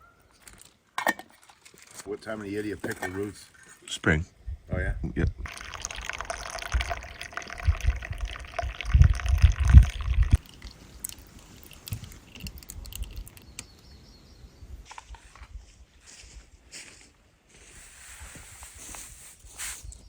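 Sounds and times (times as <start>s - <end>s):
liquid pouring: 5.4s - 13.4s.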